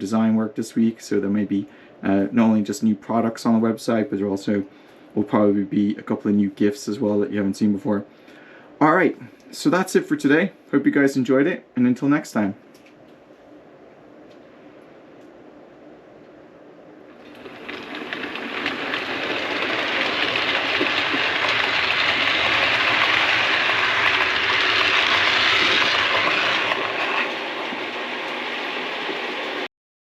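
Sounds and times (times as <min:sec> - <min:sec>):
train passing: 0:17.1 - 0:29.7.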